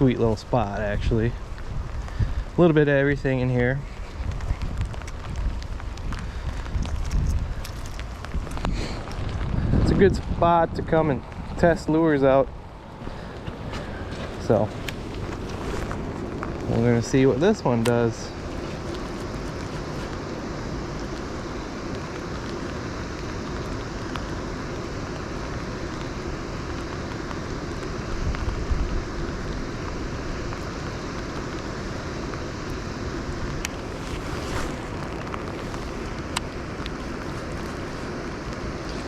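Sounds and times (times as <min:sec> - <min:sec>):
wind buffeting microphone: 0:00.0 - 0:20.9, 0:33.2 - 0:38.7
outdoor hiss: 0:00.0 - 0:39.0.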